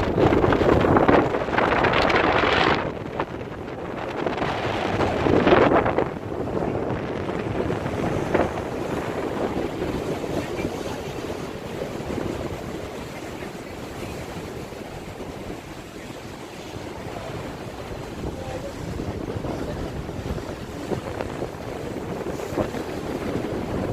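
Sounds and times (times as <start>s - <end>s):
water rushing past boat: 0.0s - 23.9s
wind buffeting microphone: 0.0s - 23.9s.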